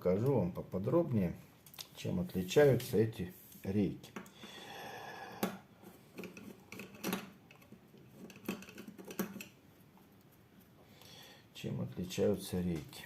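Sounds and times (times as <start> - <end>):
soft hiss: 0.0 - 6.0.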